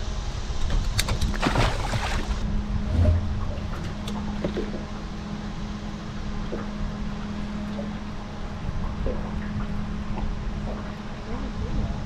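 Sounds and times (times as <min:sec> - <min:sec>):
water noise: 0:00.7 - 0:12.0.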